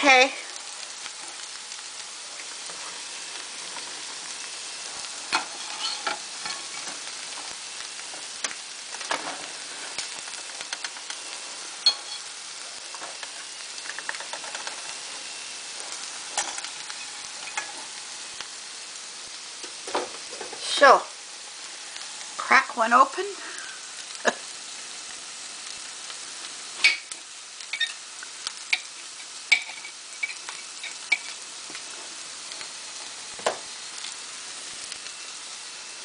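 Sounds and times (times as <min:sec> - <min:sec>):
fish frying in hot oil: 0:00.0 - 0:36.0
metal utensil clicking on pans: 0:13.2 - 0:14.9, 0:27.7 - 0:28.0, 0:28.7 - 0:31.8.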